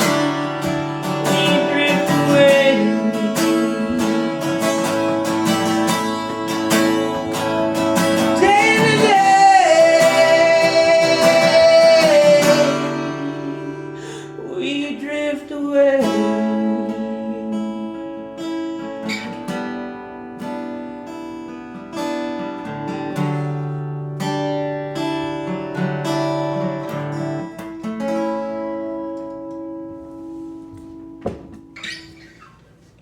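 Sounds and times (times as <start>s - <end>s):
man singing: 0.0s - 4.8s, 8.0s - 18.1s
acoustic guitar strumming: 0.0s - 33.0s.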